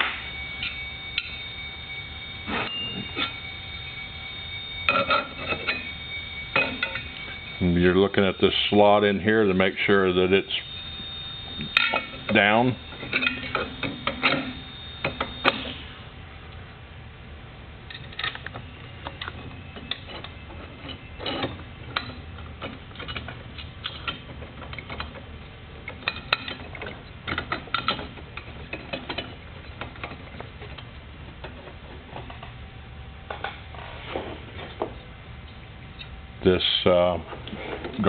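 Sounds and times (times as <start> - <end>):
low steady hum: 0.0 - 38.0
metal parts clicking and knocking: 11.7 - 15.6, 17.9 - 32.6.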